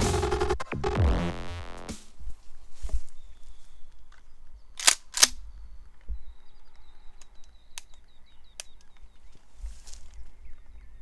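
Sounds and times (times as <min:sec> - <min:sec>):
faint bird chirps: 0:05.4 - 0:11.0.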